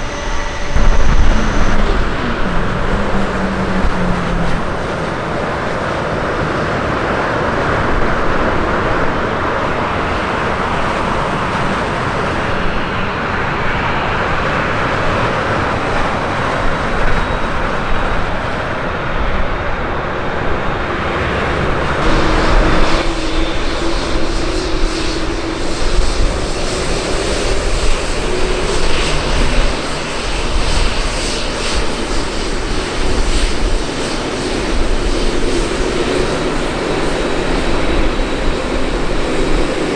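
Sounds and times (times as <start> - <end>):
steady low hum: 0.0 - 7.2, 19.5 - 33.8
deep rumble: 0.0 - 8.3, 18.9 - 36.4
jet engines roaring: 0.0 - 39.9.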